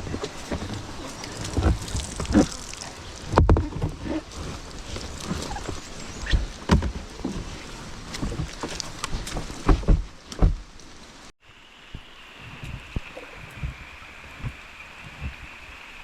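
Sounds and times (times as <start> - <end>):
kayak gear thumping and knocking: 0.0 - 10.8.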